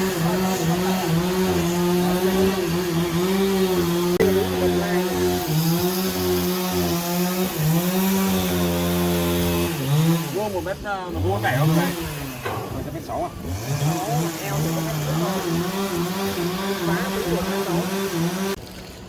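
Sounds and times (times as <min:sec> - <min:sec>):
motor saw cutting log: 0:00.0 - 0:19.0.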